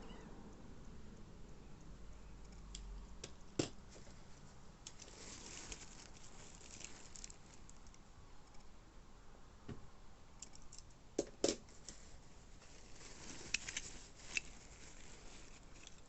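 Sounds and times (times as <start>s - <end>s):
crinkly packaging rustling: 3.9s - 8.0s, 11.7s - 16.0s.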